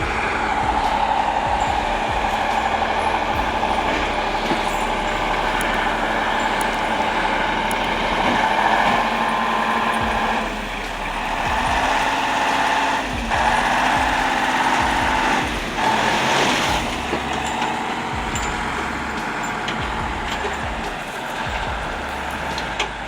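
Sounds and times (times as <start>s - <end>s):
heavy truck engine: 0.0s - 23.0s
road noise: 0.0s - 23.0s.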